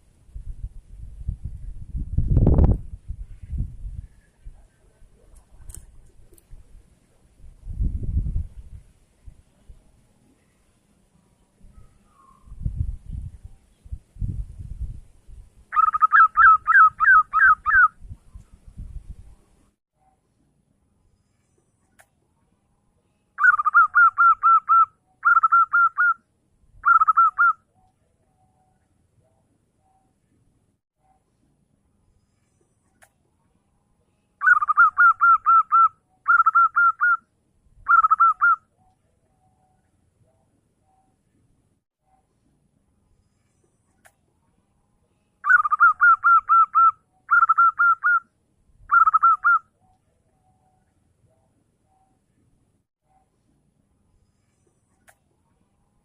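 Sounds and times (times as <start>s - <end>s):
dove cooing: 23.4s - 26.2s, 37.9s - 38.6s, 45.4s - 48.2s, 48.9s - 49.6s.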